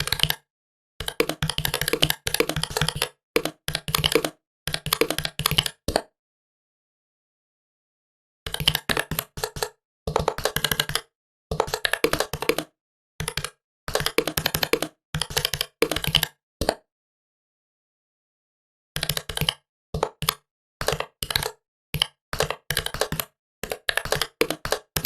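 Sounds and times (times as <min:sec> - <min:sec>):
fast typing on laptop keyboard: 0:00.0 - 0:00.4, 0:01.0 - 0:05.8, 0:08.5 - 0:16.4, 0:19.0 - 0:25.0.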